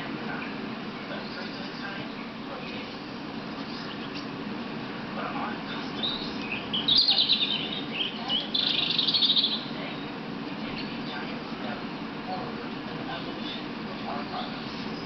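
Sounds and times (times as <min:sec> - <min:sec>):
songbirds chirping and trilling: 0:00.0 - 0:15.0.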